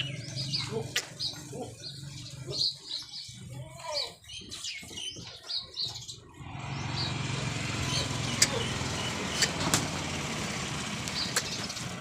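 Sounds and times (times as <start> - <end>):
vehicle engine humming: 0.0 - 2.9, 5.9 - 12.0
small birds chirping: 0.0 - 12.0.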